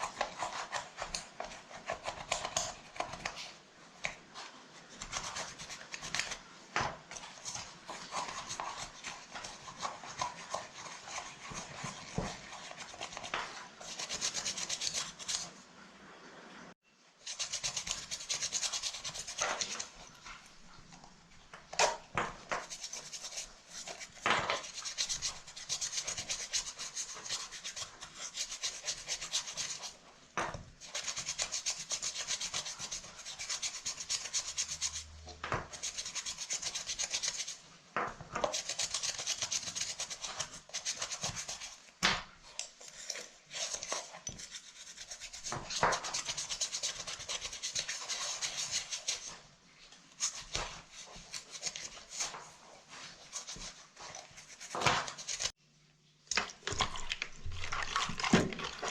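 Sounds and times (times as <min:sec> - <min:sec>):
stiff brush scrubbing: 0:07.1 - 0:15.6, 0:17.2 - 0:21.1, 0:22.4 - 0:30.1, 0:30.8 - 0:37.7, 0:38.4 - 0:55.5.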